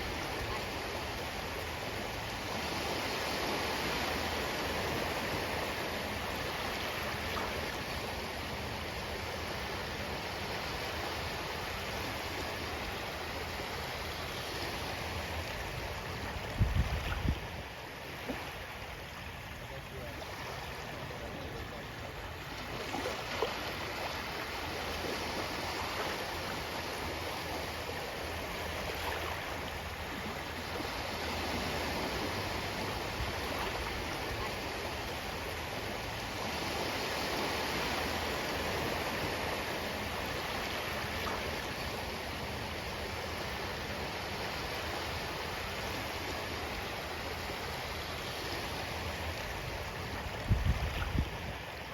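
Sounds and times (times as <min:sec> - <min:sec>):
ocean waves washing on shore: 0:00.0 - 0:51.9.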